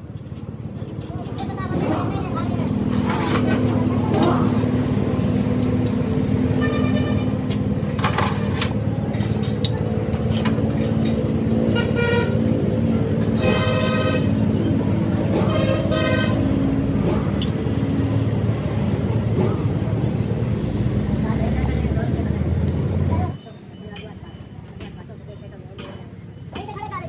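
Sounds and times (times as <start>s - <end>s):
vehicle engine running: 0.0s - 23.4s
short horn toots: 13.4s - 14.4s.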